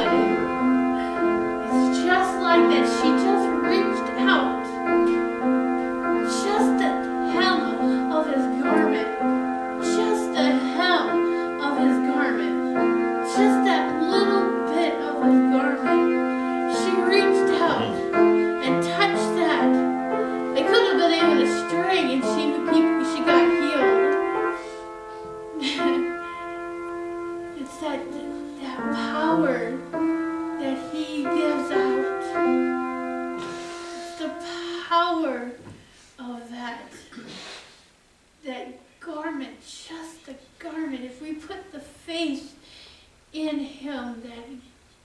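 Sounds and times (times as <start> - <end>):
keyboard music with held chords: 0.0 - 34.4.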